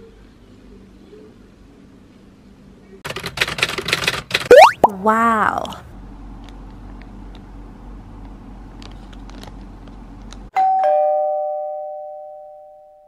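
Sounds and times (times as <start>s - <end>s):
two-note doorbell chime: 10.6s - 13.0s.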